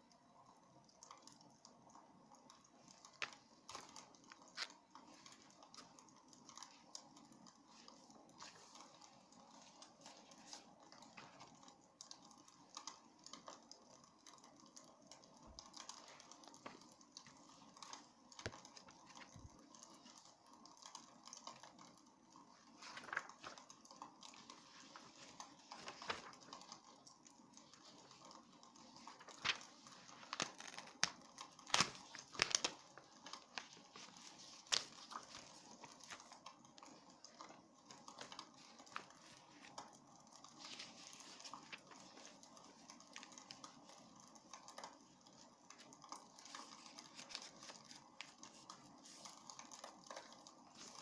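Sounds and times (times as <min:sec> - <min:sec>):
wood fire crackling and popping: 0:29.1 - 0:39.1.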